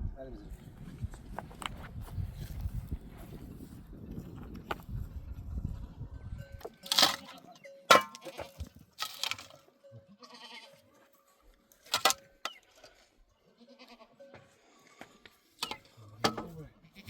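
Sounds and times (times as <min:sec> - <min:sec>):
goats and sheep bleating: 0:06.7 - 0:08.7, 0:09.6 - 0:11.4, 0:13.4 - 0:15.1, 0:16.7 - 0:17.0.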